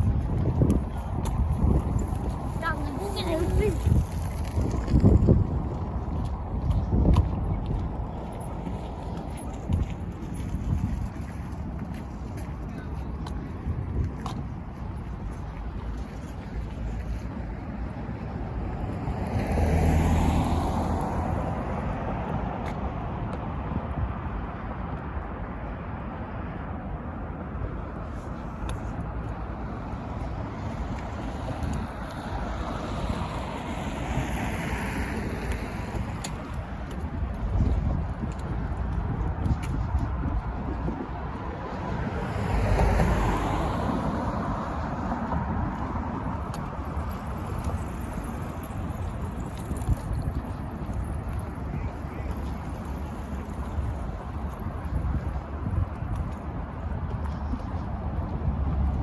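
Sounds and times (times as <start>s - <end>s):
light wind: 0.0s - 59.0s
traffic hum: 0.0s - 59.0s
vehicle passing by: 18.4s - 22.7s, 29.6s - 37.2s, 40.3s - 55.8s
vehicle passing close: 18.9s - 22.1s.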